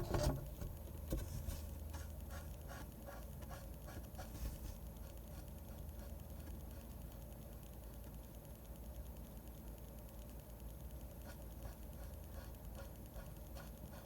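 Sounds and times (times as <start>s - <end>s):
low room hum: 0.0s - 14.0s
pen strokes on paper: 11.2s - 14.0s.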